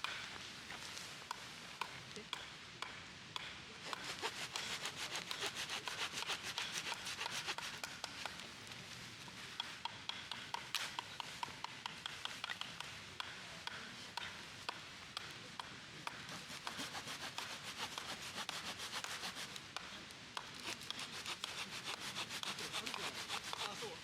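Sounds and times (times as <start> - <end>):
rapid scraping strokes: 3.8 - 8.5, 16.1 - 19.9, 20.5 - 24.0.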